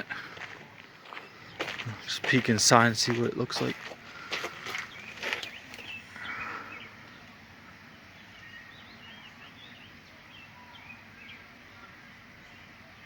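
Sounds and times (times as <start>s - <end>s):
birds chirping: 0.0s - 13.0s
outdoor background noise: 0.0s - 13.0s.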